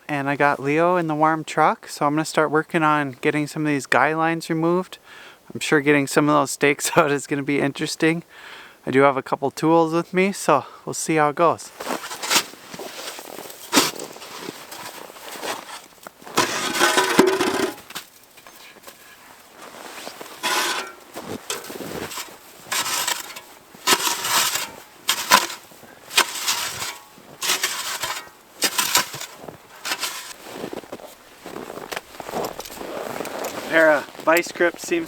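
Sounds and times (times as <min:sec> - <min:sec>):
boots crunching in snow: 0:11.8 - 0:18.0, 0:19.0 - 0:35.0
tent stakes pulled from frozen ground: 0:11.8 - 0:35.0.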